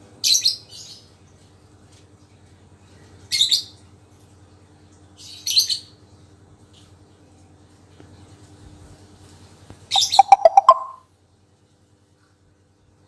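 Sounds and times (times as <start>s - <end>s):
lovebird shrill chirps: 9.9s - 11.0s.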